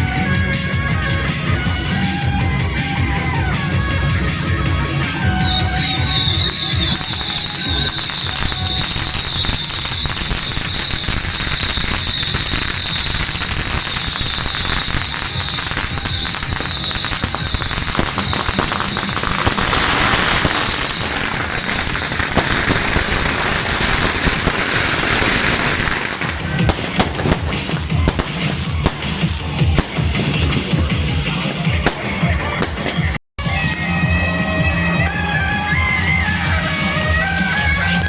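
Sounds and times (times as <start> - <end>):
firecrackers popping: 2.0 - 33.2.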